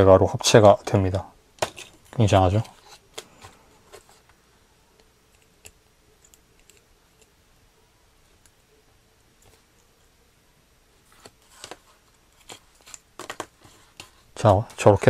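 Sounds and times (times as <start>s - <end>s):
plastic model parts clicking: 5.0s - 7.4s.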